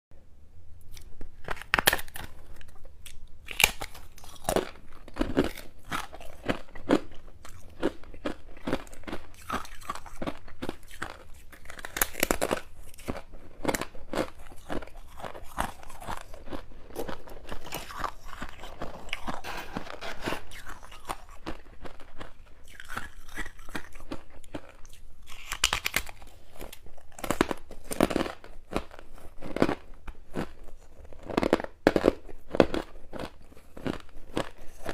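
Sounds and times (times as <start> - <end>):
chewing crunchy frost: 0.9 - 34.9.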